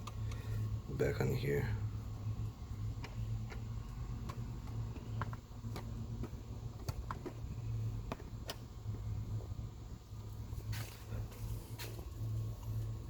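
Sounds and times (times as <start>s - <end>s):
steady low hum: 0.0s - 13.0s
tools clicking and tapping: 3.0s - 7.4s.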